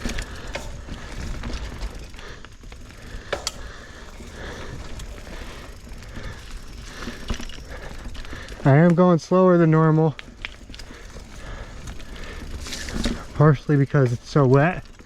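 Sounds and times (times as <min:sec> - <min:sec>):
bike chain and frame clatter: 0:00.0 - 0:15.0
tyre noise: 0:00.0 - 0:15.0.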